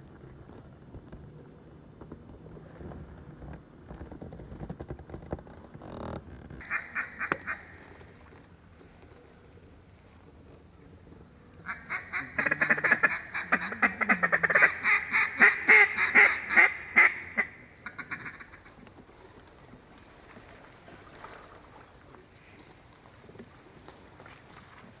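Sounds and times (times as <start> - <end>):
duck quacking: 6.6 - 7.7, 11.7 - 18.6.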